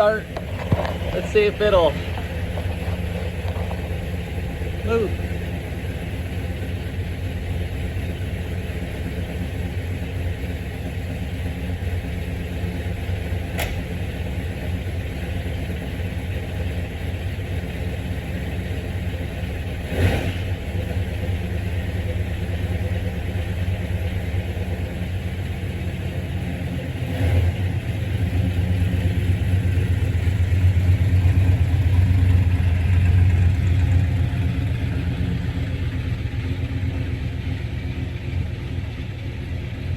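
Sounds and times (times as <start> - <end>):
car engine idling: 0.0 - 39.9
sharp click: 13.5 - 13.9
thump: 13.5 - 13.9.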